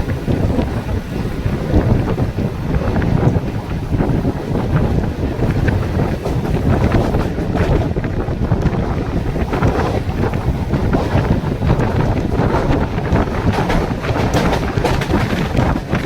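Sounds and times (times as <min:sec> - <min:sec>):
electric train rumbling: 0:00.0 - 0:16.0
rattles and clacks: 0:00.0 - 0:16.0
wind buffeting microphone: 0:00.0 - 0:16.0.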